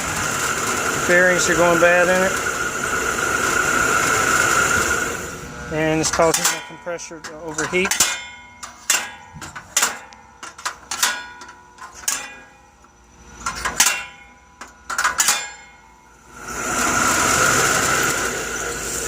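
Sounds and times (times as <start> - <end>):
air conditioner whirring hiss: 0.0 - 19.0
metallic clanks on condenser unit: 5.7 - 16.2.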